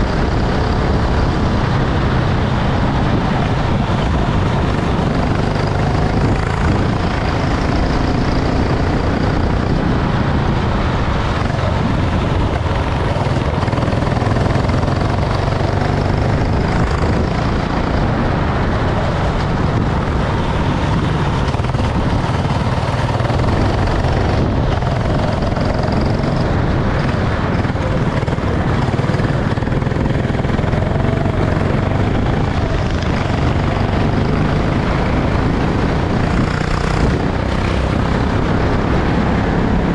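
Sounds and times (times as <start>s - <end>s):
go-kart engine running: 0.0s - 39.9s.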